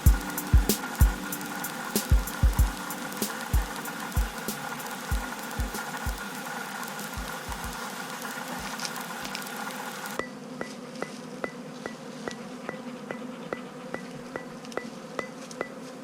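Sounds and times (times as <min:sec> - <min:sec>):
regular ticking: 0:00.0 - 0:08.8
bees buzzing: 0:00.0 - 0:16.0.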